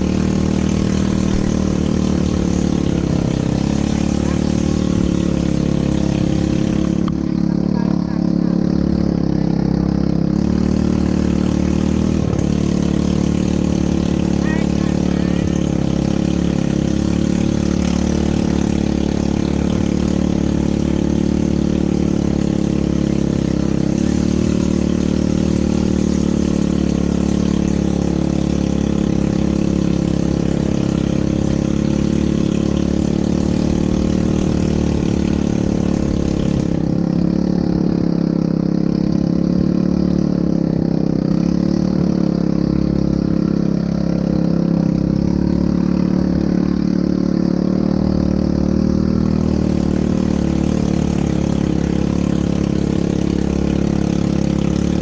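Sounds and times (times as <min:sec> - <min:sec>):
atv engine droning: 0:00.0 - 0:55.0.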